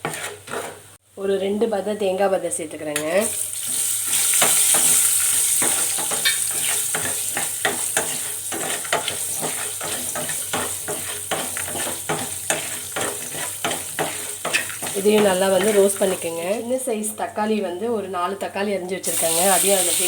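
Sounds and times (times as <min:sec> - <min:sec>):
spoon scraping a pan: 0:00.0 - 0:00.9, 0:03.0 - 0:16.2
spices sizzling in oil: 0:03.1 - 0:16.9, 0:19.0 - 0:20.0.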